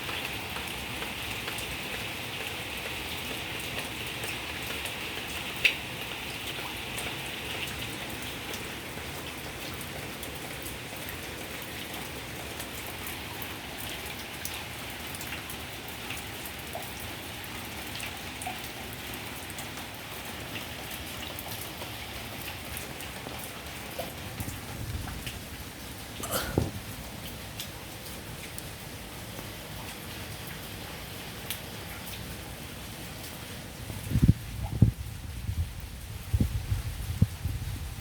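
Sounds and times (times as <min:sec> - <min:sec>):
raindrops ticking on surfaces: 0:00.0 - 0:38.0
heavy rain hissing: 0:22.0 - 0:27.6.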